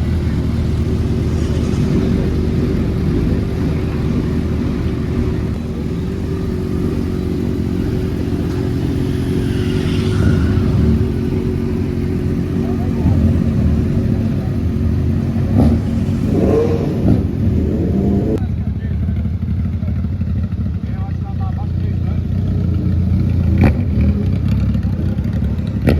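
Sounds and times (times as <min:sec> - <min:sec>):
motorcycle engines running: 0:00.0 - 0:25.9.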